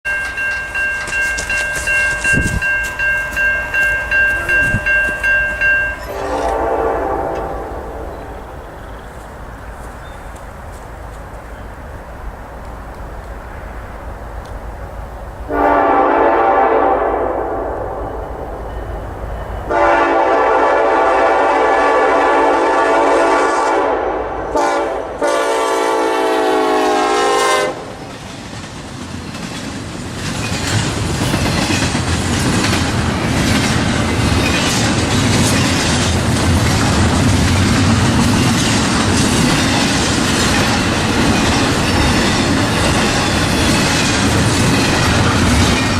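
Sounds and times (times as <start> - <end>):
train wheels clacking over rails: 0.1 - 7.7, 27.6 - 45.9
locomotive horn blasts: 6.0 - 8.5, 15.5 - 18.2, 19.7 - 27.9.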